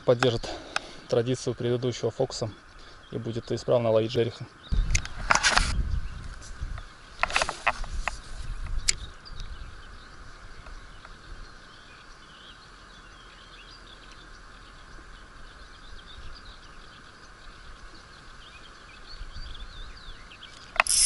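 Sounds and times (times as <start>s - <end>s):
small birds chirping: 0.0s - 21.0s
steady outdoor noise: 0.0s - 21.0s
sharp click: 20.5s - 21.0s.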